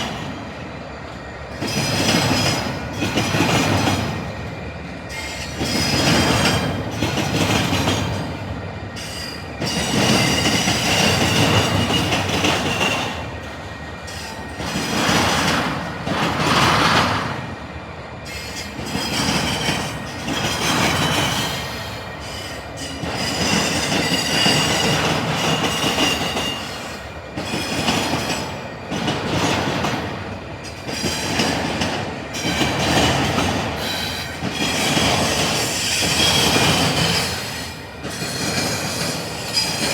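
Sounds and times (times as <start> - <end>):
train wheels clacking over crossing: 0.0 - 39.9
high-pitched wheel squeal: 39.0 - 39.9.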